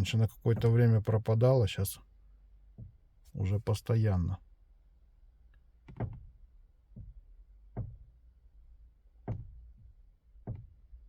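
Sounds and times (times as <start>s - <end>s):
steering knocking clicks: 0.0s - 0.9s, 5.8s - 6.3s, 6.9s - 8.1s, 9.2s - 10.9s.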